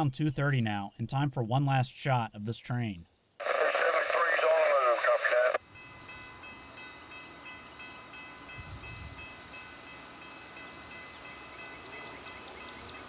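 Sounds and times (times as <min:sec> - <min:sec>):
freight train low rumble: 0:04.6 - 0:13.0.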